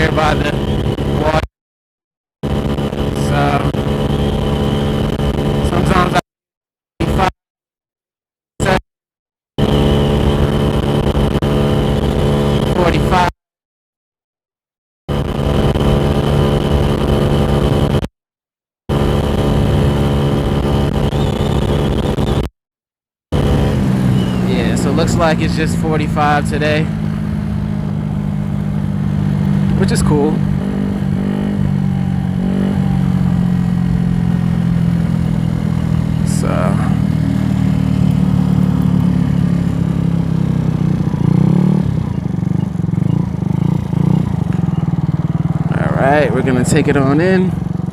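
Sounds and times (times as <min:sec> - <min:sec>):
scooter engine running flat out: 0:23.4 - 0:47.9.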